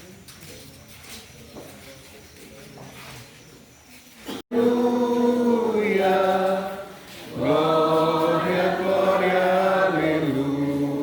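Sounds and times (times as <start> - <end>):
group singing a hymn: 4.5 - 11.0.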